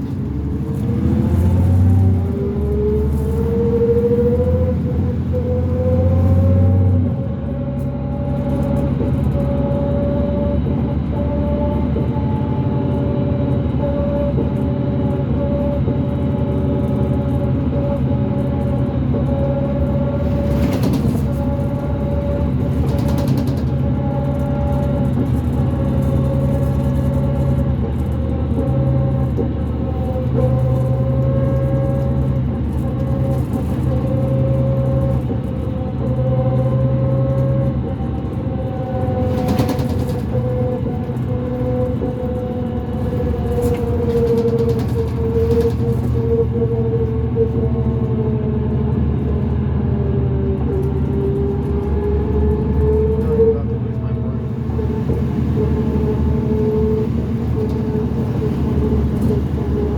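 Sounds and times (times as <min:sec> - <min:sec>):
bus axle whine: 0:00.0 - 0:59.9
bus engine drone: 0:00.0 - 0:59.9.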